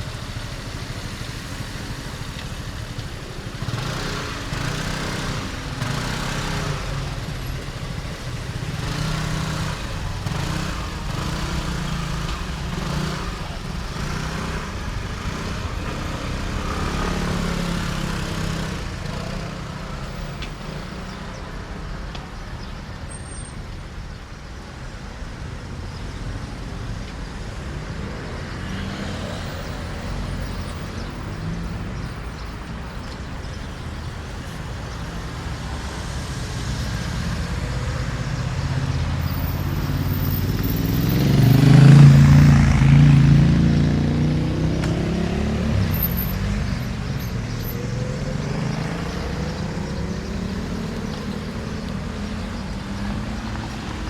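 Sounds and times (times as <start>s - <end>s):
street traffic rumbling: 0.0s - 54.0s
vehicle passing close by: 8.4s - 21.0s, 34.4s - 54.0s.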